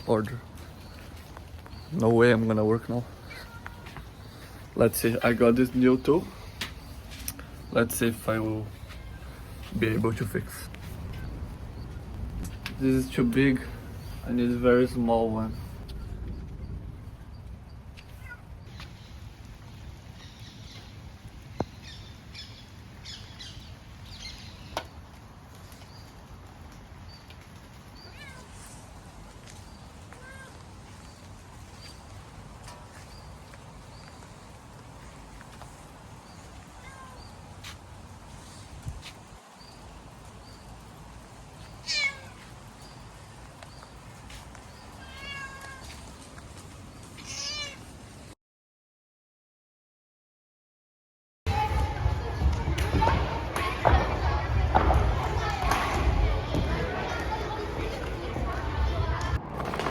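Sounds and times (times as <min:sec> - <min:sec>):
animal high-pitched calls: 0:41.8 - 0:42.4.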